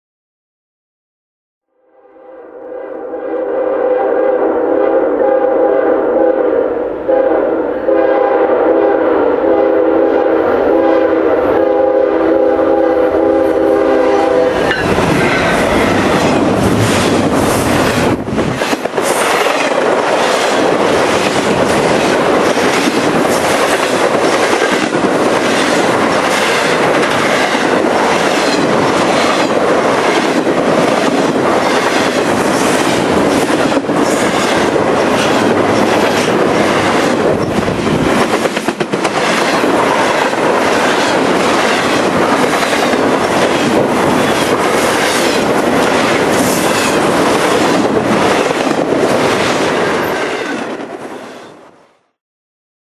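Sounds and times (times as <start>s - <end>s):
locomotive air horn chord: 1.8s - 14.9s
train rushing past: 2.6s - 51.6s.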